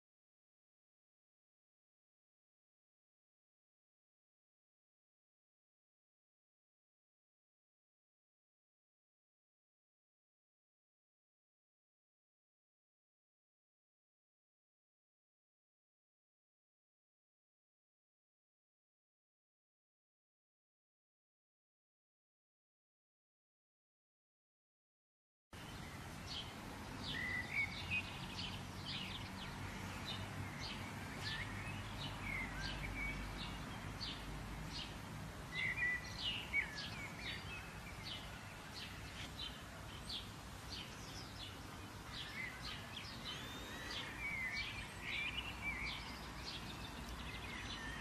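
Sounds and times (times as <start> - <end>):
steady low background noise: 25.6 - 48.0
birds chirping and calling: 35.5 - 48.0.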